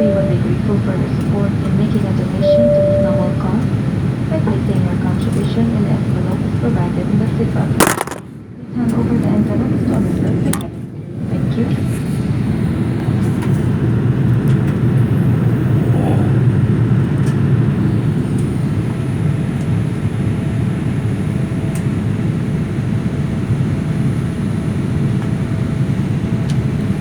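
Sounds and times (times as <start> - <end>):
faint steady hum: 0.0 - 11.7
jet engine and airflow rumble: 0.0 - 27.0.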